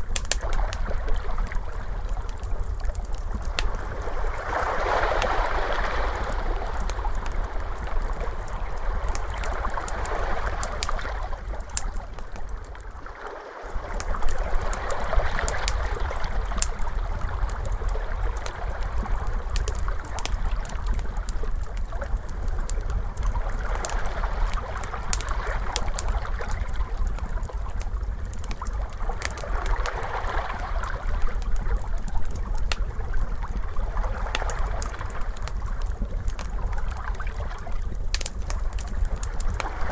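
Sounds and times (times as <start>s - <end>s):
fire crackling: 0.0s - 39.9s
ocean waves washing: 3.6s - 11.8s.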